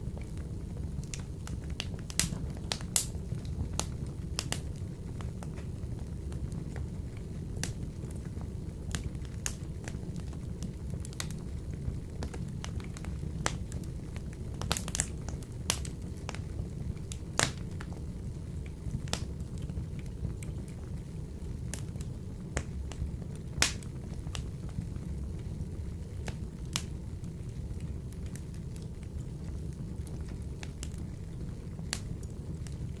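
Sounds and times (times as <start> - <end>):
wood fire crackling in stove: 0.0 - 33.0.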